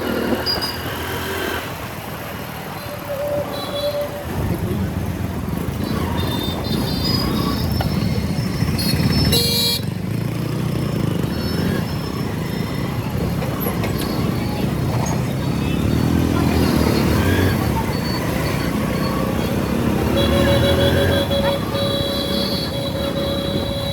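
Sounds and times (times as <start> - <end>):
road and traffic noise: 0.0 - 23.9
motorcycle engine running: 4.2 - 23.9
vehicle horn honk: 8.8 - 9.9, 20.0 - 23.9.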